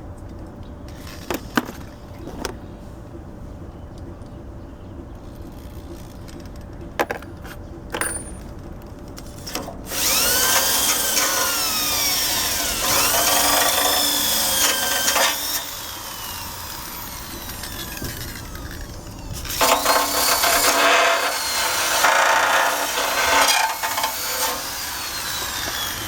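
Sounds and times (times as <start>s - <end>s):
wire brush drill on metal: 9.5s - 26.0s.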